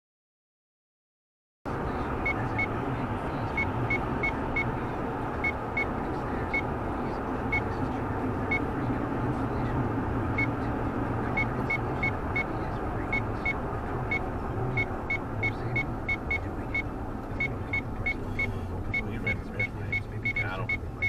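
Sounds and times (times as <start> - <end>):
car engine and road noise: 1.7 - 21.0
short high-pitched beeps: 2.2 - 2.7, 11.3 - 20.9.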